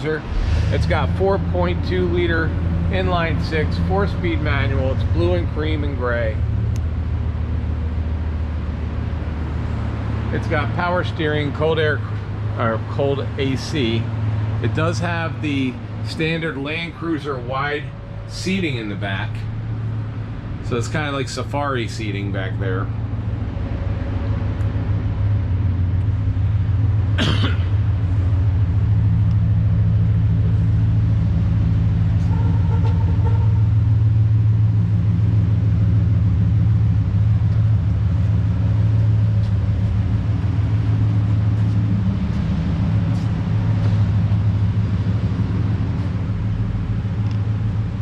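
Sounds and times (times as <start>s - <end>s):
pulsing hum: 0.0s - 10.0s, 22.9s - 48.0s
low mechanical rumble: 0.0s - 48.0s.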